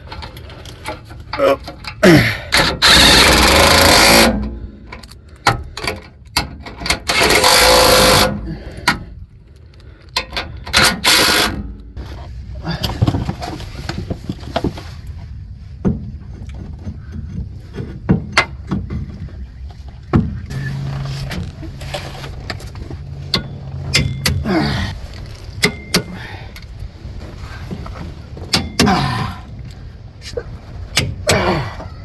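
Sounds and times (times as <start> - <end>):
steady low hum: 11.2 - 32.0
low rumble: 11.7 - 32.0
metallic clicks of hand tools: 23.2 - 24.9, 25.6 - 26.7.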